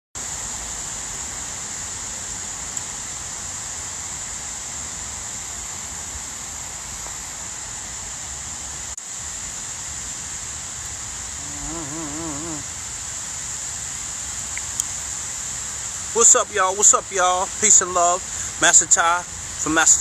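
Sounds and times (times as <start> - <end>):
light rain falling: 0.2 - 20.0
high-pitched whine: 11.4 - 12.7.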